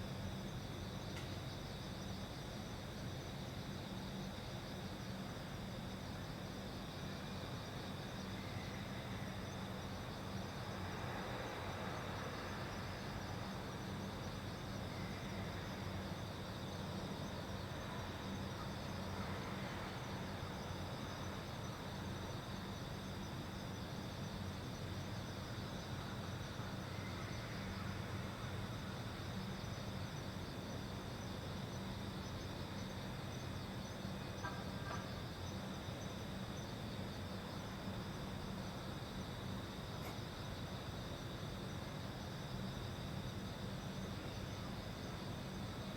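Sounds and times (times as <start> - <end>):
crickets chirping: 0.0 - 45.9.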